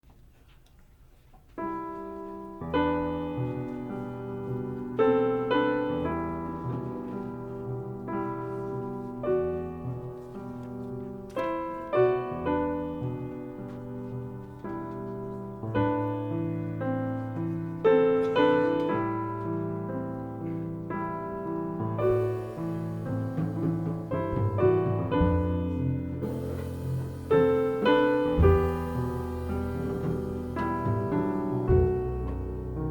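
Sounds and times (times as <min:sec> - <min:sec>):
jazz piano chords: 0:01.5 - 0:32.9.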